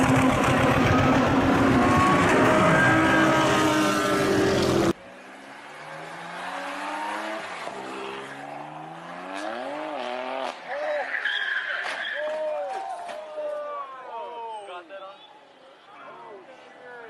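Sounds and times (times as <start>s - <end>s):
car engine accelerating: 0.0s - 10.7s
racing cars at full throttle: 0.0s - 12.4s.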